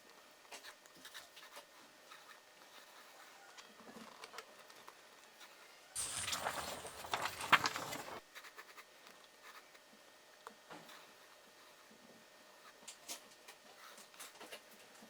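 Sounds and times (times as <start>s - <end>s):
pencil scratching on paper: 0.6s - 3.4s, 5.4s - 9.8s.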